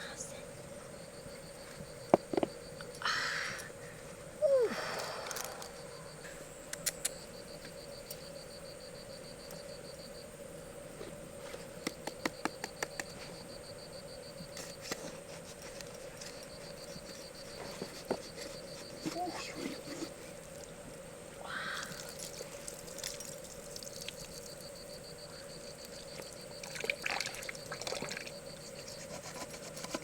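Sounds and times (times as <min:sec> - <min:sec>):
faint steady hum: 0:00.0 - 0:30.0
insect chirping trill: 0:00.0 - 0:30.0
sharp clicks: 0:06.7 - 0:07.2.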